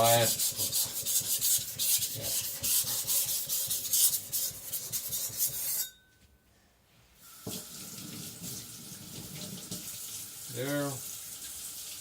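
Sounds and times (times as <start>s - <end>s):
cleaver grinding on whetstone: 0.0s - 6.0s
water tap running: 7.2s - 12.0s.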